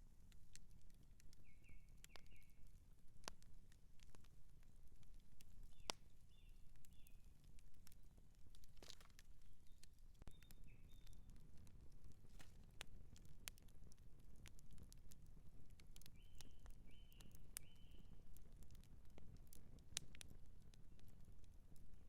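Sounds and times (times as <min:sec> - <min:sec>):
campfire crackling and popping: 0:00.0 - 0:22.0
bird chirping: 0:10.3 - 0:11.3, 0:16.2 - 0:18.1.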